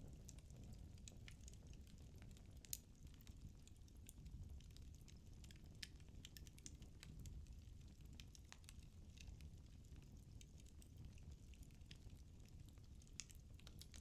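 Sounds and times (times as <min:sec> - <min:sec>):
firewood crackling and snapping: 0:12.9 - 0:14.0.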